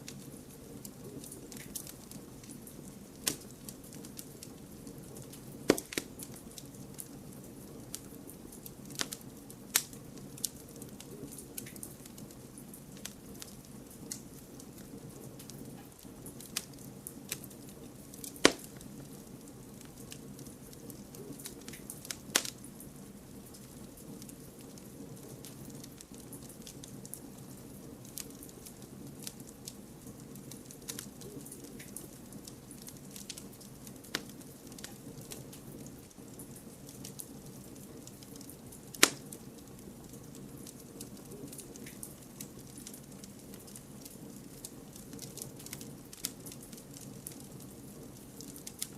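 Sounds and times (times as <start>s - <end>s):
campfire crackling: 0.0s - 48.9s
loud sharp fire pops: 5.6s - 6.2s, 18.2s - 18.9s, 38.9s - 39.4s.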